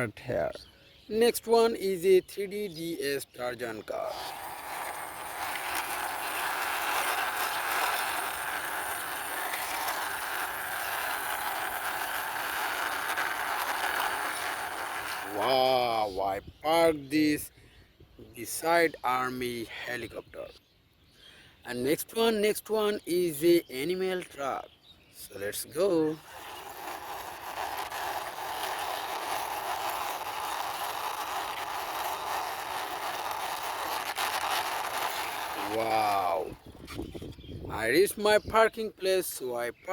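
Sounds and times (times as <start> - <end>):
toy car wheels rolling: 3.6 - 16.1, 25.5 - 37.2.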